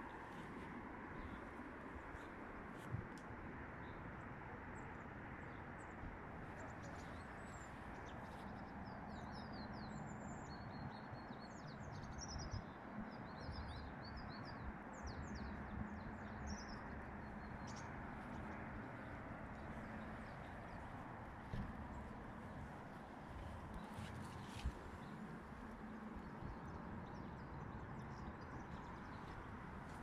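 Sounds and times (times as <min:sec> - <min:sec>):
small birds chirping: 0:06.5 - 0:30.0.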